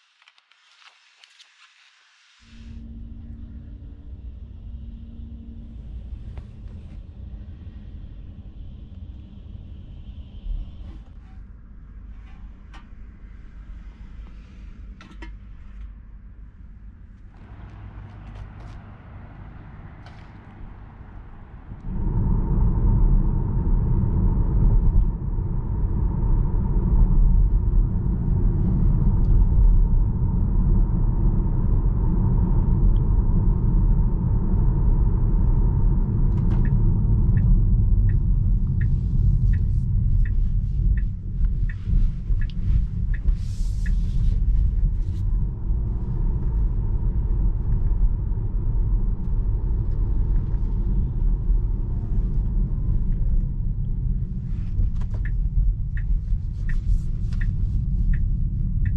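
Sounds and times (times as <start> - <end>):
road and tyre rumble: 17.2 - 58.9
light ticks: 36.3 - 45.3, 53.8 - 58.9.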